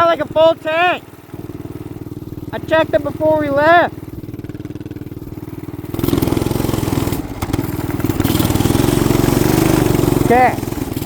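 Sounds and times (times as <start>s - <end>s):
person talking: 0.0s - 1.0s, 2.5s - 4.0s, 10.2s - 10.7s
small engine revving unevenly: 0.0s - 11.0s.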